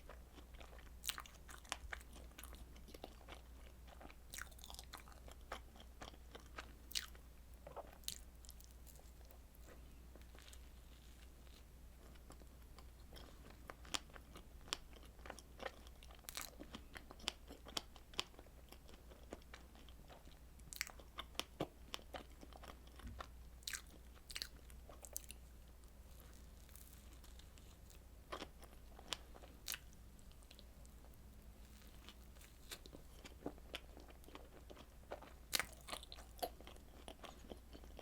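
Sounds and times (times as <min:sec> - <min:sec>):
crunchy biting and chewing: 0:00.1 - 0:11.7, 0:20.7 - 0:25.4, 0:26.1 - 0:30.6, 0:31.6 - 0:38.0.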